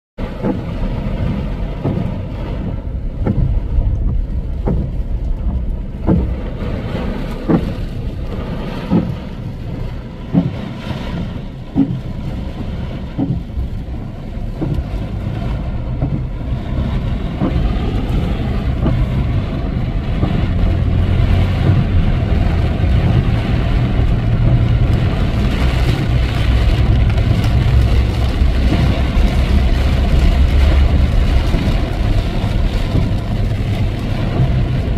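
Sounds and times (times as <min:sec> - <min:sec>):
vehicle driving through rain: 0:00.2 - 0:34.9
regular knock: 0:03.2 - 0:06.4.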